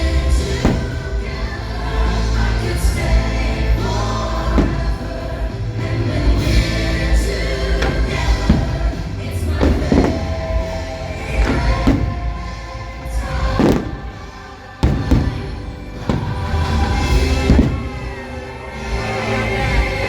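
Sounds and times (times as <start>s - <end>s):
heavy low rumble: 0.0s - 20.0s
music with choral singing: 0.0s - 20.0s
short thuds: 0.6s - 1.4s, 4.6s - 5.3s, 7.7s - 10.8s, 11.4s - 12.6s, 13.6s - 18.3s.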